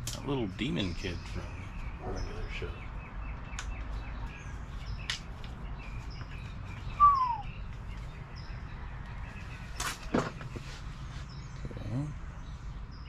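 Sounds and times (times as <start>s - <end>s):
small high bird chirps: 0.2s - 10.5s
bird whistle sliding down: 7.0s - 7.4s.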